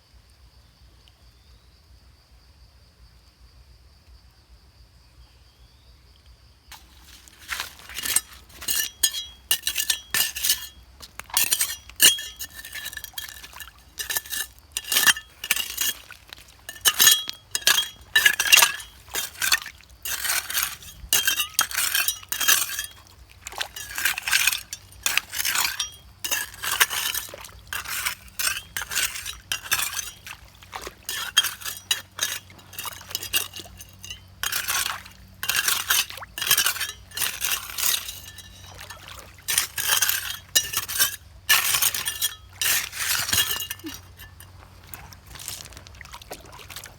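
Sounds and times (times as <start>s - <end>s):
hard objects clinking together: 6.7s - 23.0s, 23.6s - 44.6s.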